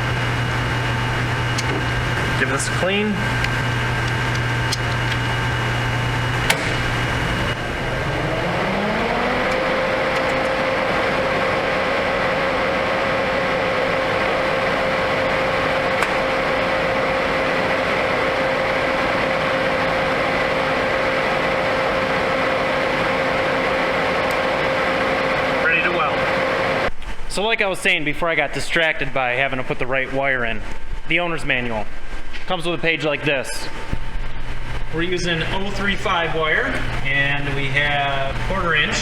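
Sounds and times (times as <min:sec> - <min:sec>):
angle grinder whining: 0:00.0 - 0:26.9.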